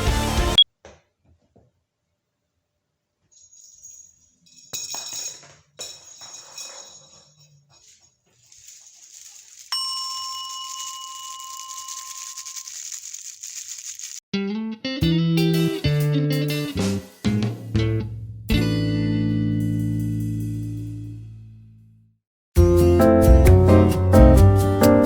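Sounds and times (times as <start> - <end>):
clicks and clatter: 4.9 - 14.2
bell-like ding: 9.8 - 11.9
guitar music: 14.4 - 21.1, 22.6 - 25.0.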